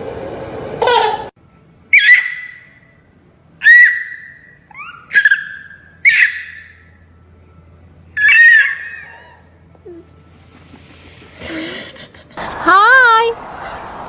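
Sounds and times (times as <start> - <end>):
parrot shrill whistling calls: 1.9 - 2.8, 3.6 - 6.8, 8.2 - 9.2.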